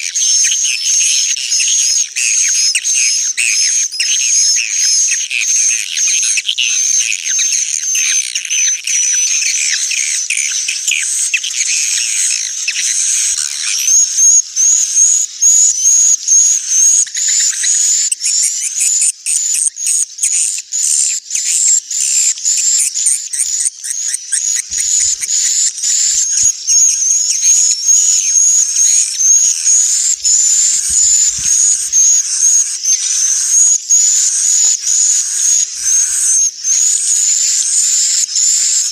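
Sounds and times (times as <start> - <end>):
swiftlets chirping and twittering: 22.5 - 38.9.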